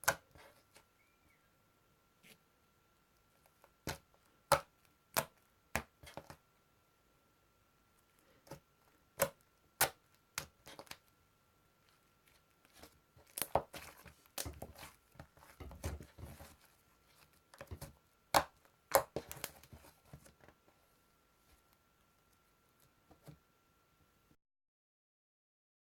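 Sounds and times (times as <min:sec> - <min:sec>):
faint high whine: 0:00.8 - 0:03.1.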